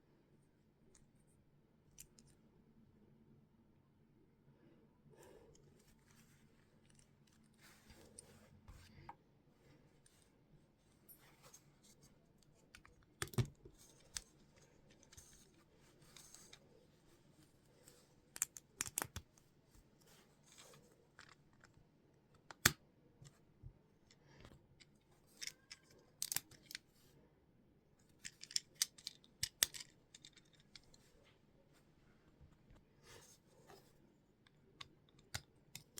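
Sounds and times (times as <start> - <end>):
plastic pieces clicking and scraping: 18.4 - 19.2, 24.8 - 26.8, 28.1 - 31.1.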